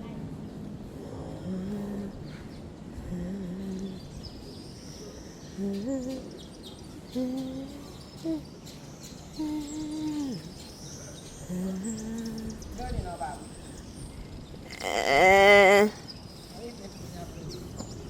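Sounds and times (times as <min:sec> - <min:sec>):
person humming low notes: 0:14.7 - 0:16.0.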